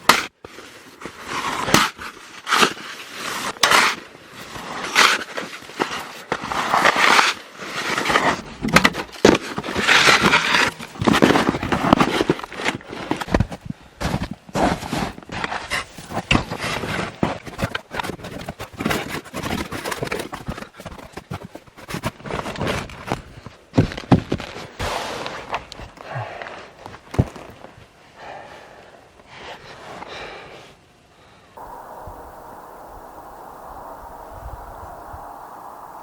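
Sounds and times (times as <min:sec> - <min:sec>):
steady hiss: 0:31.6 - 0:36.0.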